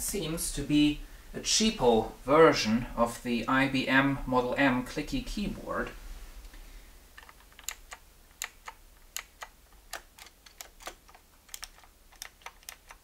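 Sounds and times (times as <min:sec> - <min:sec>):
keyboard keys clicking: 0:07.2 - 0:13.0.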